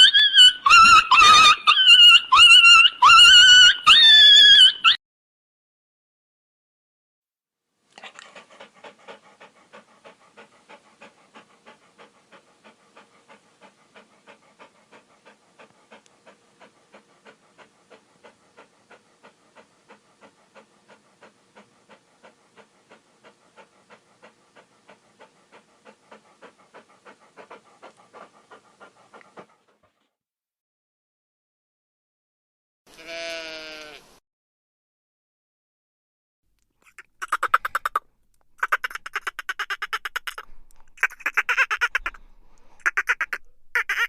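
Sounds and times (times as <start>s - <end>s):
dog panting: 0.0s - 4.2s, 7.9s - 30.1s, 36.9s - 38.0s, 38.6s - 44.0s.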